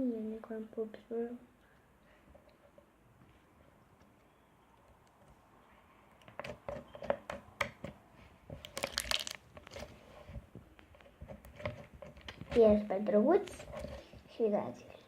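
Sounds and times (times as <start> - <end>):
slime popping and crackling: 8.6 - 9.8.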